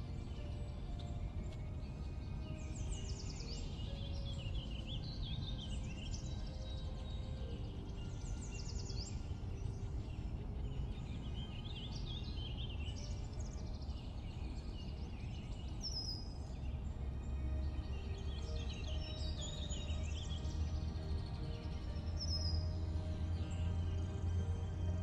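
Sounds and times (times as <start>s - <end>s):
birds singing: 0.0s - 25.0s
low background rumble: 5.1s - 25.0s.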